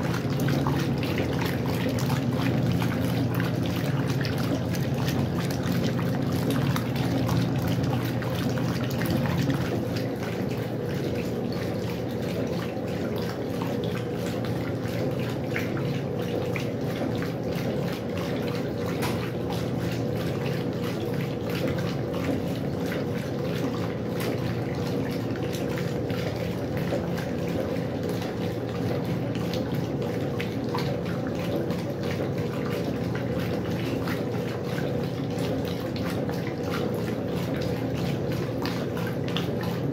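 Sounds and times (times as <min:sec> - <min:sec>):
washing machine running: 0:00.0 - 0:39.9
water splashing inside machine: 0:00.0 - 0:39.9.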